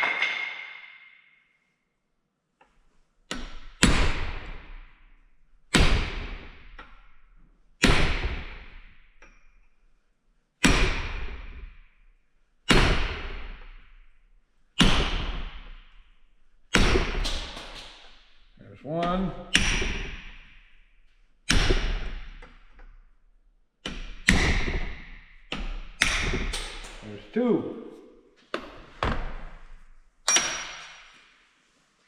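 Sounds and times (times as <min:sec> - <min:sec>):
hammer striking metal: 0:30.3 - 0:31.2.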